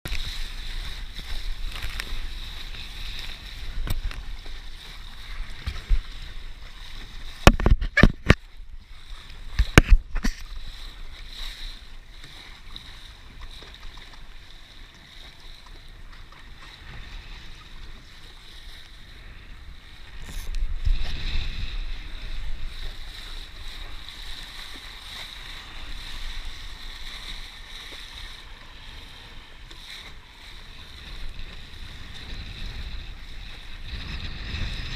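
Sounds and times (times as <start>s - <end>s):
water rushing along boat hull: 0.1s - 34.9s
wind buffeting microphone: 19.4s - 24.8s, 30.3s - 34.9s.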